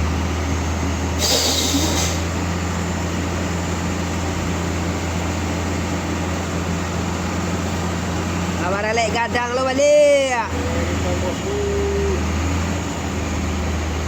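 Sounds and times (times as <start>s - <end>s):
truck diesel engine labouring: 0.0s - 14.0s
short hiss: 1.2s - 2.3s.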